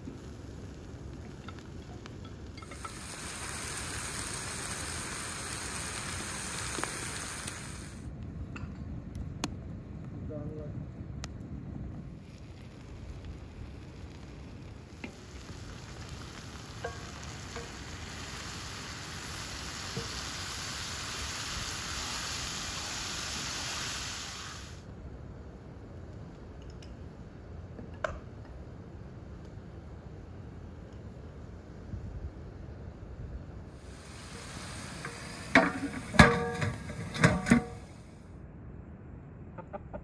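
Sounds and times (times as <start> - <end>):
tomatoes sizzling in a wok: 0.0 - 8.1, 12.2 - 24.8, 33.7 - 38.0.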